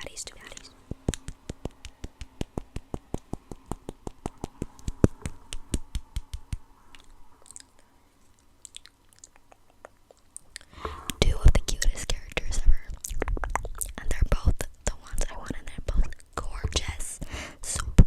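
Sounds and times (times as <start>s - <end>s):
rapid tapping: 0.8s - 7.1s.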